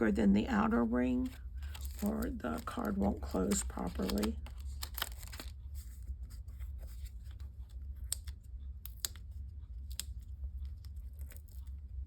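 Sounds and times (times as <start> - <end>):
steady low hum: 0.0 - 12.0
paper rustling: 0.8 - 8.4.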